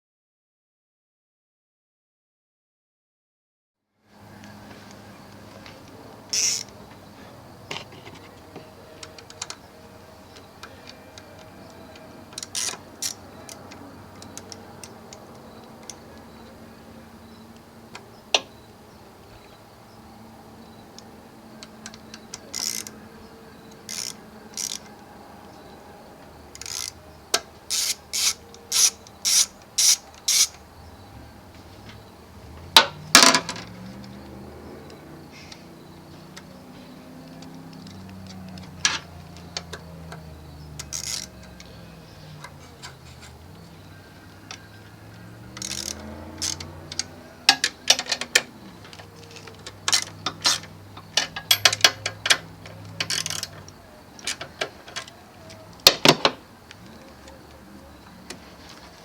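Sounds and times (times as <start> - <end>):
hand tool clicks and knocks: 45.5 - 57.6.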